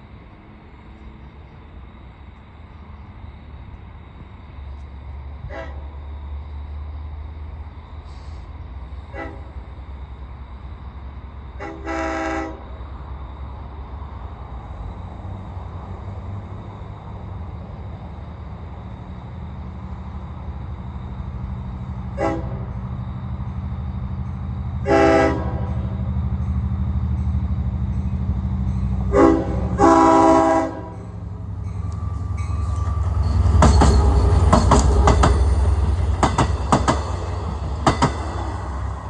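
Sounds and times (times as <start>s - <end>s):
diesel train engine rumble: 0.0s - 39.0s
train horn blasts: 5.4s - 5.9s, 9.1s - 9.6s, 11.6s - 12.6s, 22.1s - 22.7s, 24.8s - 25.9s, 29.0s - 34.9s
train wheels clicking on rail joints: 30.9s - 39.0s.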